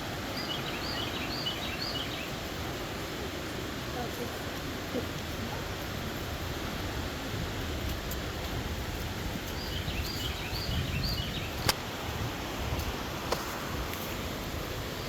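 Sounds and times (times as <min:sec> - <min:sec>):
small bird chirping: 0:09.5 - 0:11.7.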